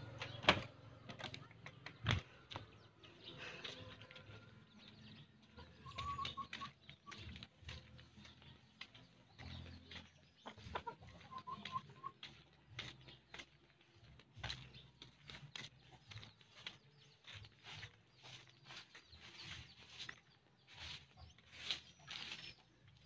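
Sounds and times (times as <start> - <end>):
faint bird chirps: 5.6 - 7.4.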